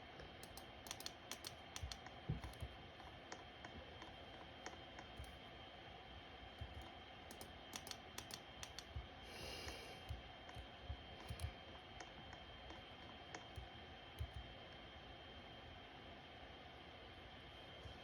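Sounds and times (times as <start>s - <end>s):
faint fan hum: 0.0s - 18.0s
ceiling fan clicking: 0.2s - 5.4s, 6.5s - 14.8s.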